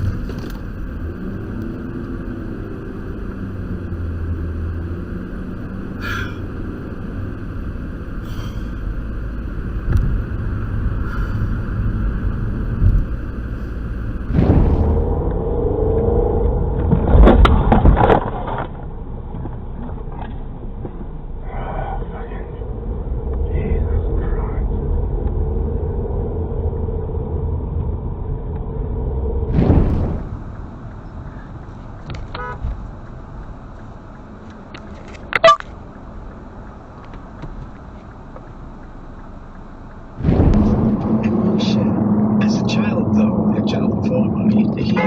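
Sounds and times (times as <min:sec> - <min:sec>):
car driving: 0:00.0 - 0:45.0
vehicle road noise: 0:00.0 - 0:45.0.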